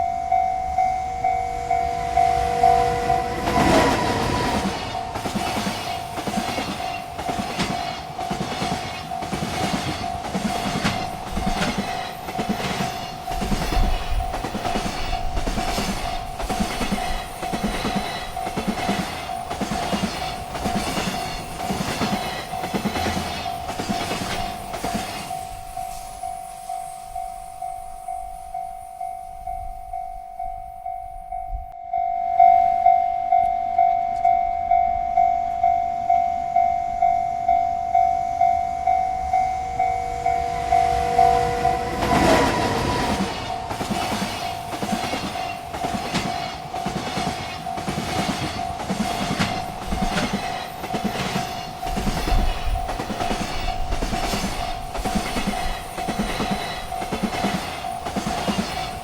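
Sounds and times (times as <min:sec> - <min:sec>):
freight train cars rumbling: 0:00.0 - 0:31.7, 0:32.8 - 0:59.0
railroad crossing bell ringing: 0:00.0 - 0:59.0
wheels clacking over rail joints: 0:01.2 - 0:25.5, 0:39.3 - 0:59.0.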